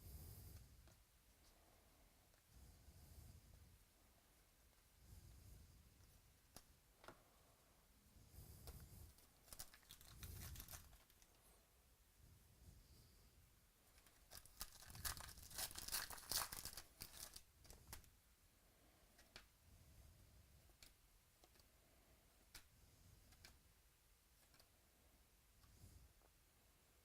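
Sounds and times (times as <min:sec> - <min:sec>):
wrapper tearing and crinkling: 0:09.5 - 0:11.2, 0:14.0 - 0:18.0.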